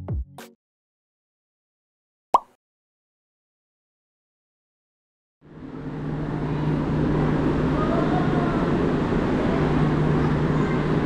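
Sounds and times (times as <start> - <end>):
electric trains humming and rumbling: 5.4 - 11.0.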